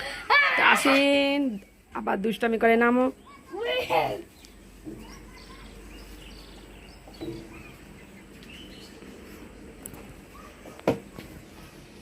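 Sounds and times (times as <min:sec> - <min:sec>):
faint bird chirps: 0:03.1 - 0:09.0.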